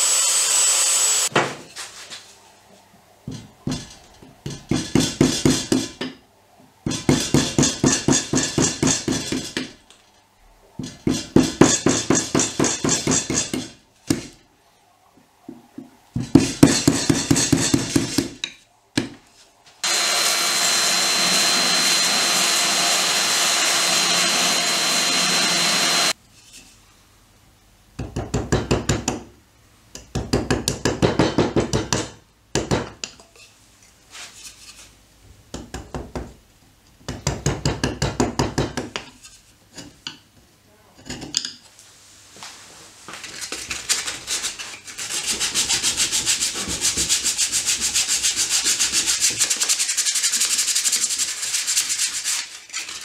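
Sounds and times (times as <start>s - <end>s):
power sander whining: 0.0s - 1.3s, 19.8s - 26.2s
hand sanding wood: 19.8s - 26.2s, 43.9s - 53.0s.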